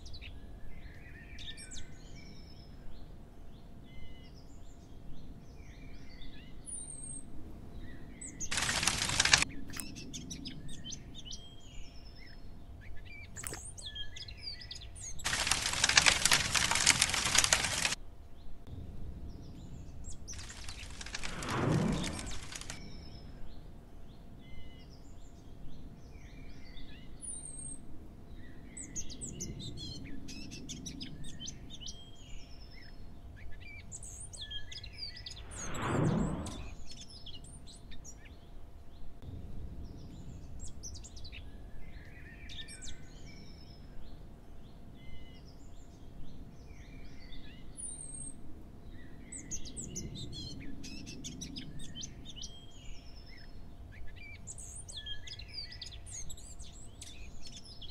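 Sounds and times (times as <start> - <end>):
loud whoosh: 35.3 - 36.9.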